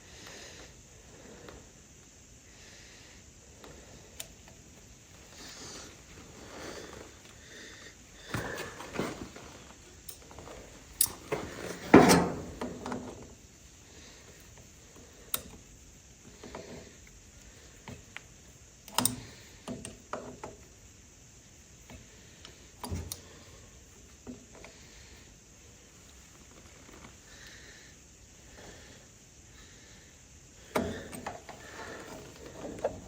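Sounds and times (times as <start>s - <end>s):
hand tools and metal clanking: 8.2s - 13.3s, 30.7s - 33.0s.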